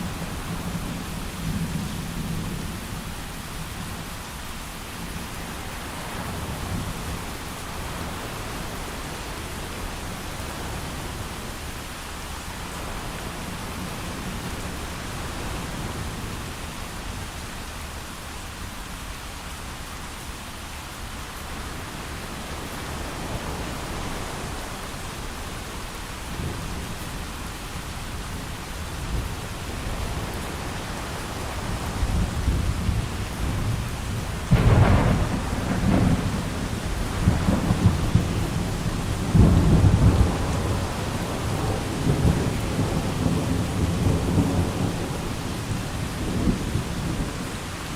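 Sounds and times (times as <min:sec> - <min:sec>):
steady rain: 0:00.0 - 0:47.9
thunder rumbling and cracking: 0:29.1 - 0:47.6.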